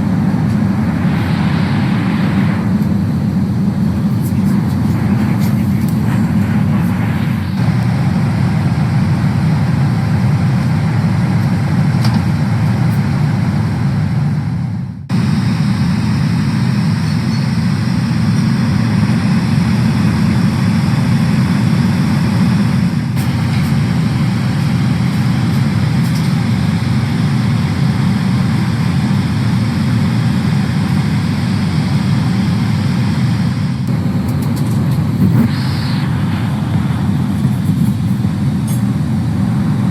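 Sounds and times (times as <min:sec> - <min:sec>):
aircraft cabin engine roar: 0:00.0 - 0:39.9.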